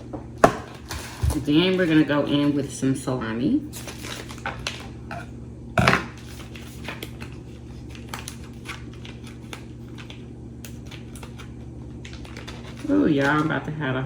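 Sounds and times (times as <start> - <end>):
steady low hum: 0.0 - 14.0
plastic package rustling: 3.7 - 5.2, 6.1 - 13.6.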